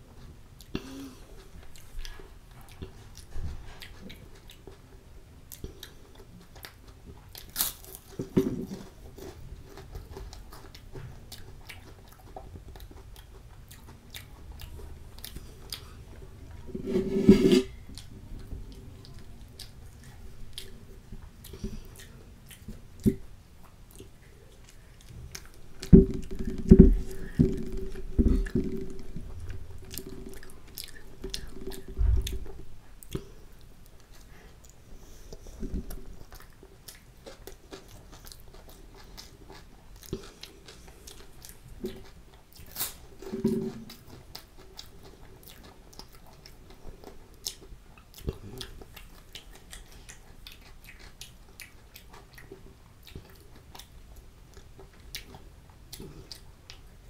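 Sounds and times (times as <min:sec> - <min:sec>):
mouth chewing food: 0:00.0 - 0:57.0
dull thumps: 0:25.8 - 0:29.5.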